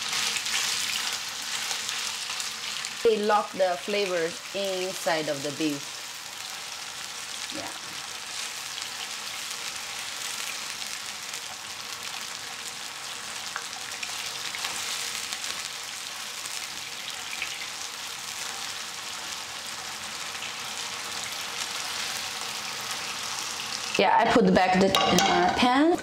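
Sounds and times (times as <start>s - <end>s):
beef sizzling in hot oil: 0.0s - 25.1s.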